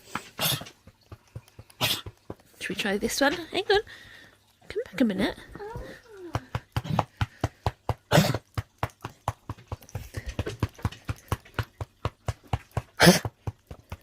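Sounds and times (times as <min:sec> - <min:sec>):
cupped hands slapping dog's chest: 0:00.0 - 0:03.0, 0:06.2 - 0:14.0.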